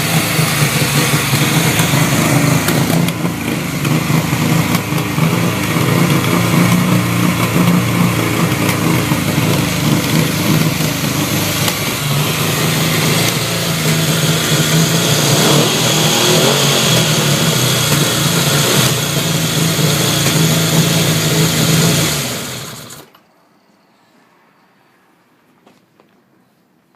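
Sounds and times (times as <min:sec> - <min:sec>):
motorcycle engine running: 0:00.0 - 0:23.1.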